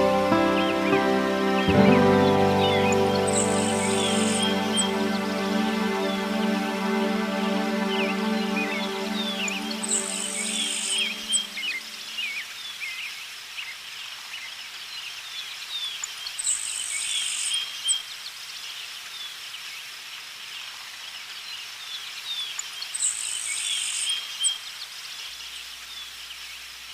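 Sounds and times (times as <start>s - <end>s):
tits chirping: 0.0s - 12.2s
high buzzy bird call: 0.0s - 12.4s.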